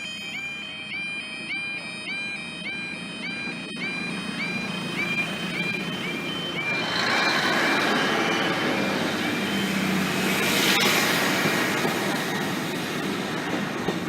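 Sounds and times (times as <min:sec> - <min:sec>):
two-tone crossing warning alarm: 0:00.0 - 0:14.0
train passing: 0:03.7 - 0:14.0.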